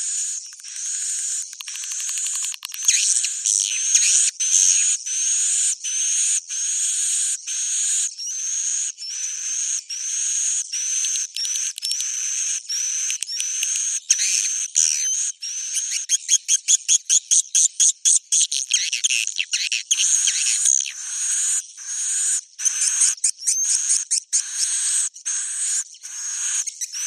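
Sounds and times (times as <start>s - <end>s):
buzzy bird chirps with rising whistle: 18.8s - 27.0s.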